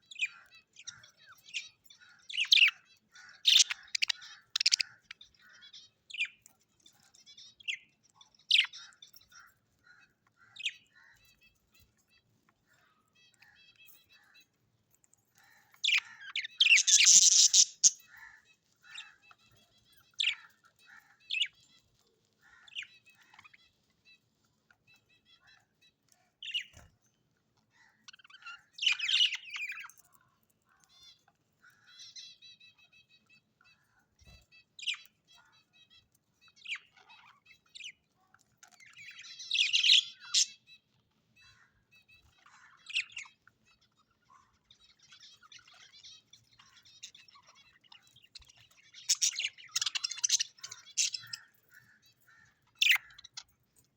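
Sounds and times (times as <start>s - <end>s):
birds chirping and trilling: 0.0s - 53.9s
bird harsh squawks: 3.3s - 5.1s, 15.9s - 18.4s.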